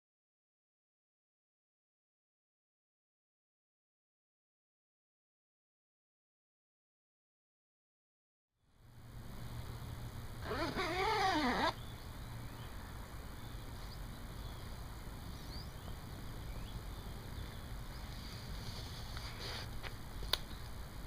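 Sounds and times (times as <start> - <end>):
animal call rising and falling: 10.4 - 11.8.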